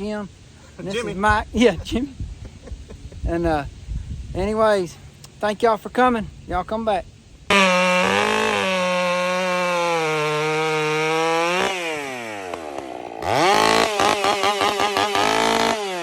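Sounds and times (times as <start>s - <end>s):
chainsaw revving: 7.5s - 16.0s.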